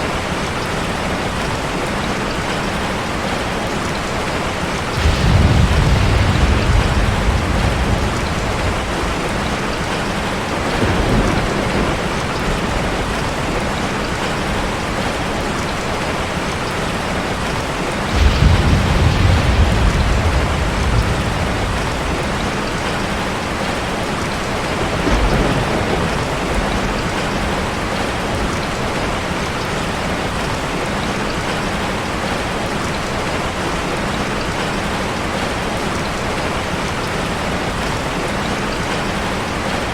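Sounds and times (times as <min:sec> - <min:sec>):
waterfall rushing: 0:00.0 - 0:25.1
deep rumble: 0:05.0 - 0:11.5, 0:18.1 - 0:23.2.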